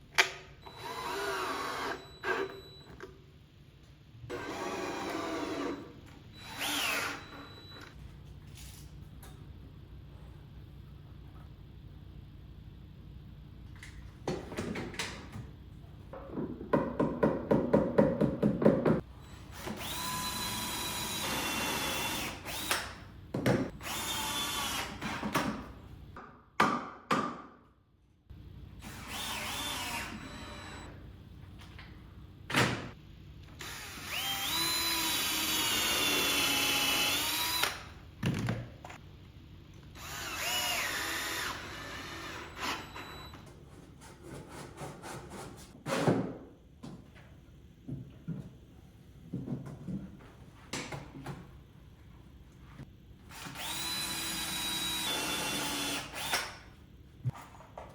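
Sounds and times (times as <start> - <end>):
power drill driving screws: 6.4 - 7.4, 28.9 - 30.8, 33.6 - 37.9, 40.0 - 43.3, 53.3 - 56.6.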